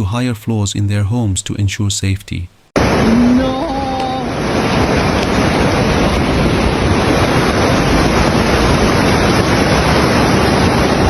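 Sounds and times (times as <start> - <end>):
floodwater stream rushing: 2.8 - 11.0.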